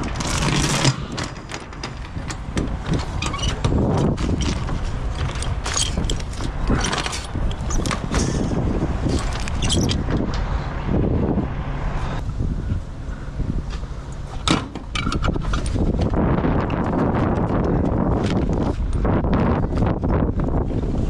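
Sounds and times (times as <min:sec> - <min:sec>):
metal chains clinking and rattling: 0:00.0 - 0:08.5
wind buffeting microphone: 0:00.0 - 0:21.0.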